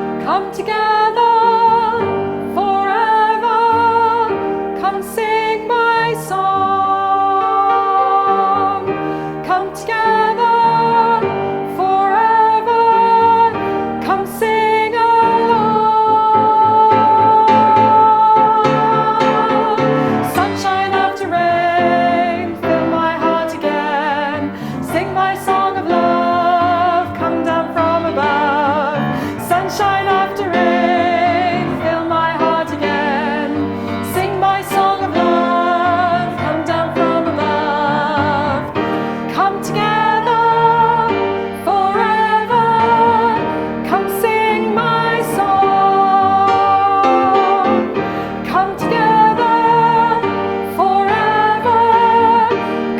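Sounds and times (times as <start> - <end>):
person singing with vibrato: 0.0 - 52.9.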